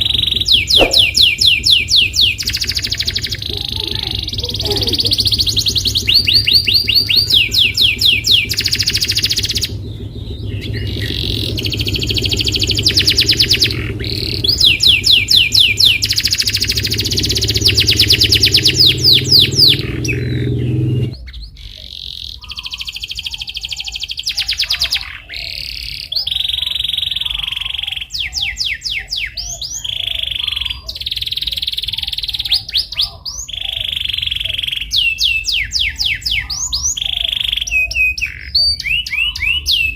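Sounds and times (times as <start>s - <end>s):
low hum: 0.0s - 21.2s
canary singing trills: 0.0s - 39.9s.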